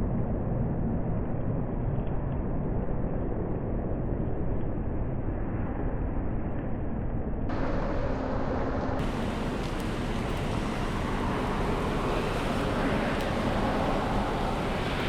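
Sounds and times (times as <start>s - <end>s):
car driving in heavy rain: 7.5s - 15.0s.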